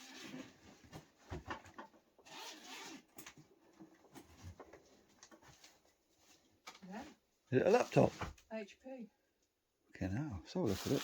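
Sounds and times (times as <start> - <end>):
zip drawn open: 2.2 - 3.1
bag rustling: 10.7 - 11.0.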